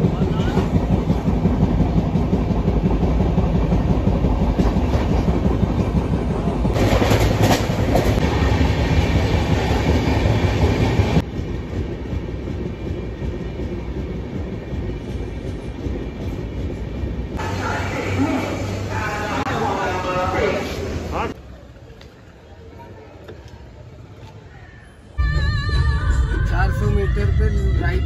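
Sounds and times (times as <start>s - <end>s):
train wheels rattling over rails: 0.0s - 17.4s.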